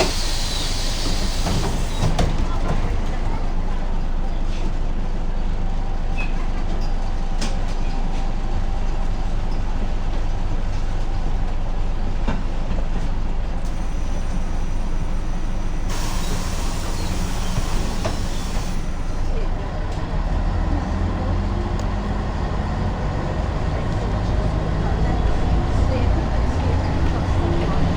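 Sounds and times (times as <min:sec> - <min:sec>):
hiss: 0:00.0 - 0:02.2, 0:15.4 - 0:19.0
bus engine and road rumble: 0:00.0 - 0:27.9.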